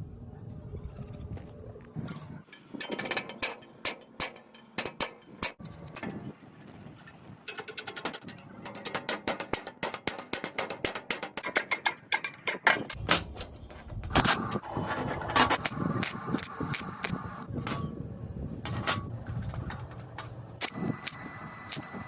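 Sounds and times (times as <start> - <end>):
sharp mechanical clicks: 19.4 - 22.0.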